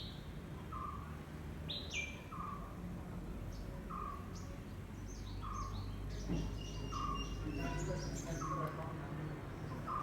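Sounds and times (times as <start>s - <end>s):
birds chirping: 5.0s - 10.0s.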